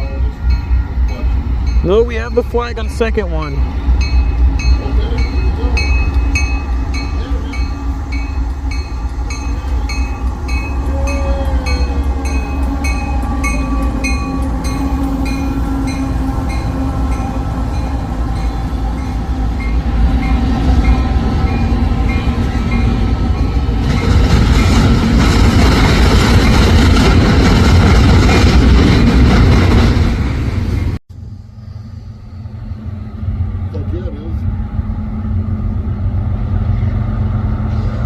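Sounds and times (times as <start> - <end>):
railroad crossing bell dinging: 0.0 - 24.8
freight train rumbling: 0.0 - 38.0.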